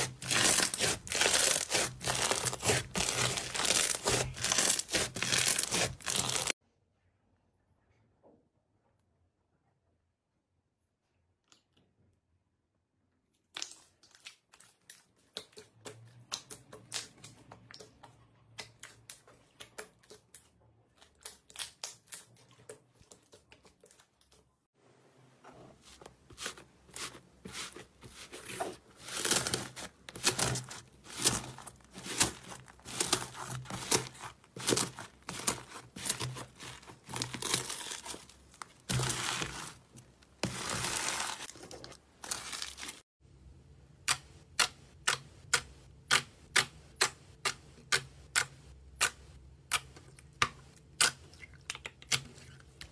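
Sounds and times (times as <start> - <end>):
slime crackling and popping: 0.0 - 6.6, 29.1 - 39.8.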